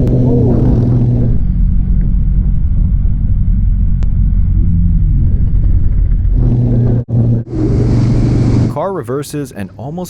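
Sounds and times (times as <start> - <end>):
wind on camera: 0.0 - 8.7
motorcycle engine rumble: 0.0 - 8.8.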